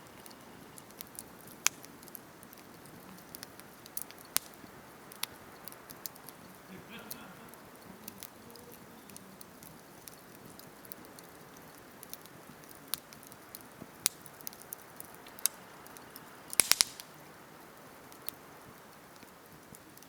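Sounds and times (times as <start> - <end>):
campfire crackling and popping: 0.0 - 20.0
faint steady hiss: 0.0 - 20.0.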